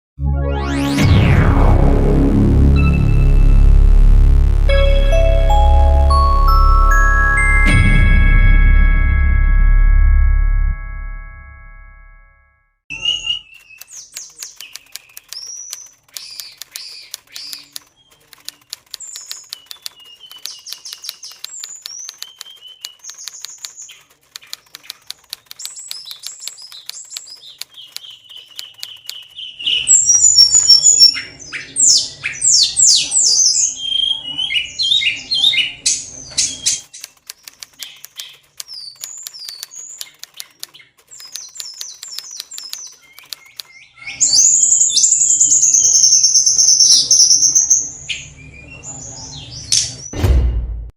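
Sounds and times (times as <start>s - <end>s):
fast small clicks: 13.4s - 31.2s, 36.7s - 44.5s
bird singing whistled phrases: 29.6s - 31.2s.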